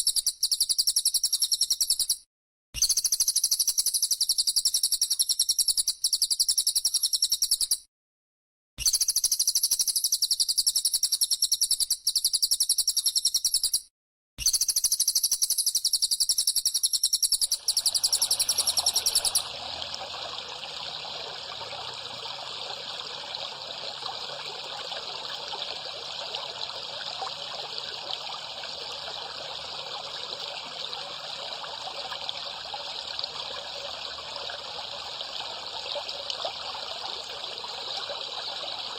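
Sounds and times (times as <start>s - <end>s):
songbirds singing: 15.9s - 20.1s
high rapidly pulsing calls: 16.8s - 24.4s
cicada buzzing: 17.1s - 19.6s
water trickling: 17.4s - 38.9s.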